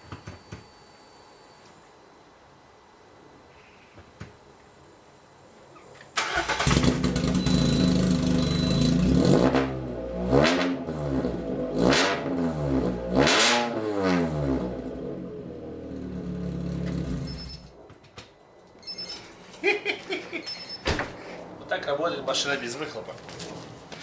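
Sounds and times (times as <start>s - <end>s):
car engine starting and revving: 6.2s - 17.5s.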